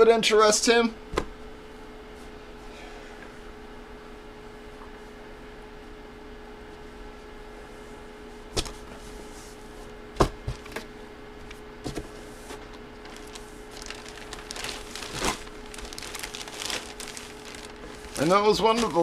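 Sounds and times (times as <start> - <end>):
faint hum: 0.0 - 19.0
packaging rustling: 12.6 - 19.0.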